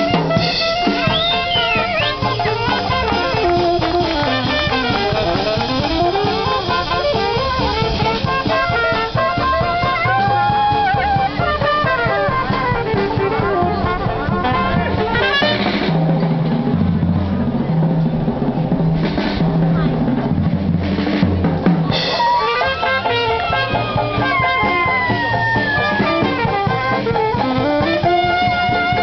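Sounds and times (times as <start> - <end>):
brass horns sliding notes: 0.0 - 16.1, 21.9 - 29.0
low bass line: 0.0 - 22.2
drum kit: 0.0 - 29.0.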